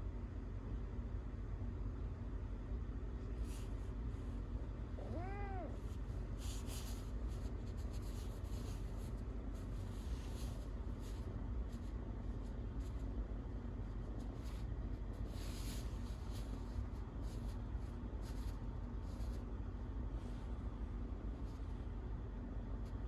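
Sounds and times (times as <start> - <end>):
soft scratchy rustling: 3.2 - 21.9
cat meowing: 5.0 - 6.0.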